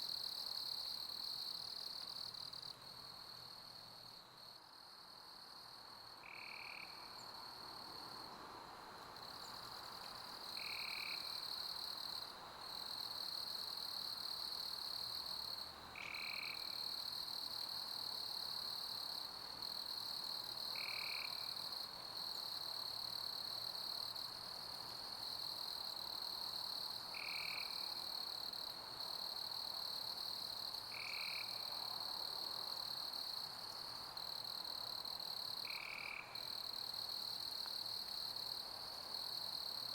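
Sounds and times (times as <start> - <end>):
crickets chirping: 0.0 - 39.9
short lower insect call: 6.2 - 7.4, 16.0 - 16.9, 30.9 - 31.8, 35.5 - 37.8.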